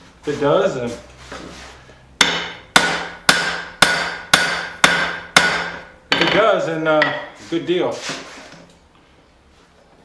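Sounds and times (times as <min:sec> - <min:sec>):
hammer striking steel: 0:02.2 - 0:07.4.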